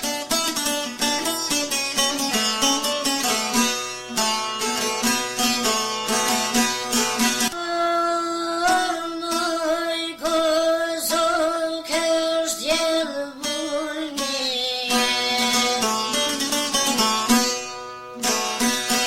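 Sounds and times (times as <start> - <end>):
plucked string instrument: 0.0 - 19.0
person singing: 7.4 - 17.0.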